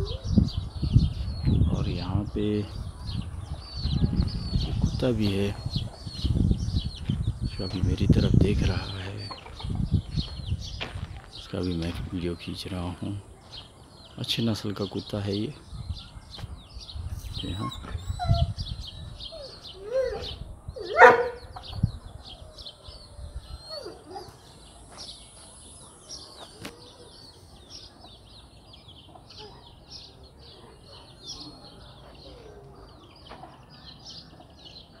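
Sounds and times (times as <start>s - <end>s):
small birds twittering: 0.0s - 35.0s.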